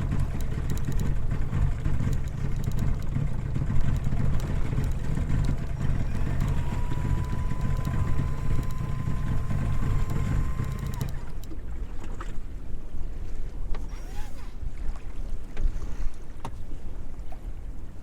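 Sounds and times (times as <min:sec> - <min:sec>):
thin steady whine: 0:00.0 - 0:11.6
boat engine rumbling: 0:00.0 - 0:18.0.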